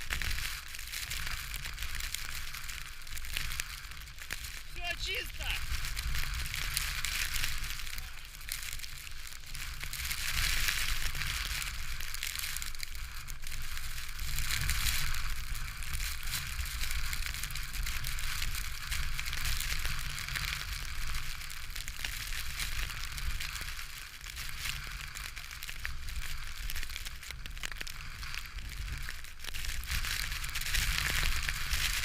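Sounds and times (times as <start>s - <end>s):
dense crackling hiss: 0.0s - 32.0s.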